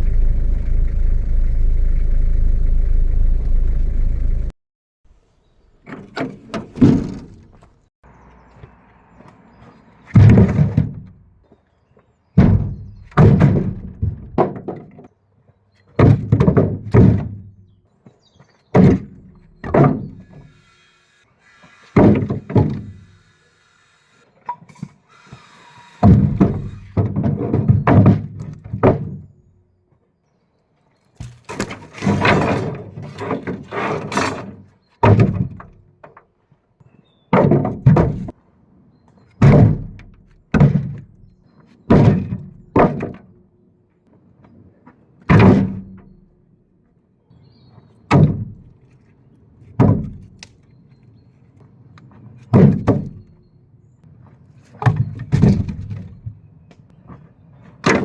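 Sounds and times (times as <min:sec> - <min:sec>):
firewood logs thudding and clattering: 0:05.9 - 0:07.8, 0:10.1 - 0:11.6, 0:12.3 - 0:15.1, 0:15.9 - 0:17.7, 0:18.4 - 0:20.4, 0:22.0 - 0:23.0, 0:26.0 - 0:29.3, 0:31.2 - 0:36.2, 0:37.3 - 0:38.4, 0:39.4 - 0:43.4, 0:45.2 - 0:46.2, 0:48.1 - 0:48.7, 0:49.8 - 0:50.6, 0:52.4 - 0:53.3, 0:54.7 - 0:56.4, 0:57.8 - 0:58.0.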